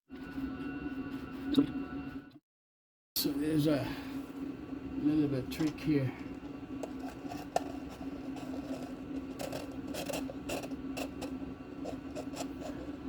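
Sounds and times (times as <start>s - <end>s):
steady low hum: 3.2s - 13.0s.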